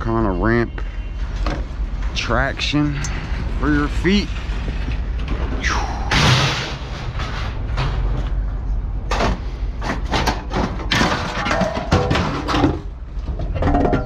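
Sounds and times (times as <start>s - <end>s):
steady low rumble: 0.0s - 14.0s
scrap metal crashing onto pile: 6.1s - 8.0s, 9.1s - 14.0s.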